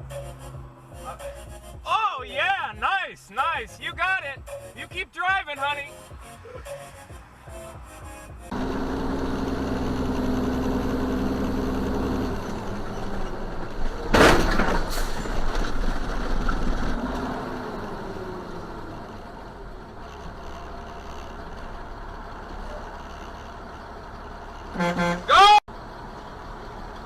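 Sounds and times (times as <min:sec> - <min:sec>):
vehicle engine humming: 0:00.0 - 0:27.0
loud crash: 0:14.1 - 0:17.0.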